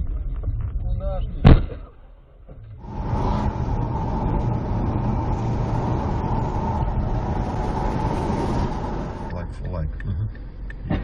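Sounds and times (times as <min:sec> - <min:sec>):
car engine and road noise: 0:02.3 - 0:11.0
thin whine: 0:02.8 - 0:09.7.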